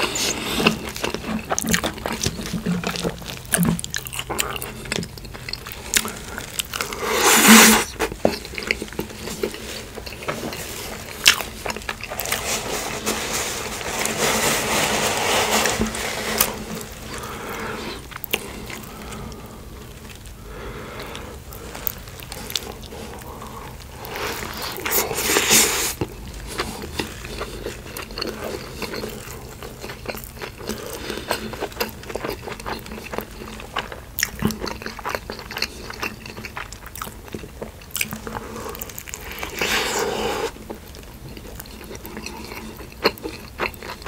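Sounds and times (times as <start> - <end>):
wet mouth sounds: 0.0 - 10.2
chewing and crunching food: 0.0 - 44.0.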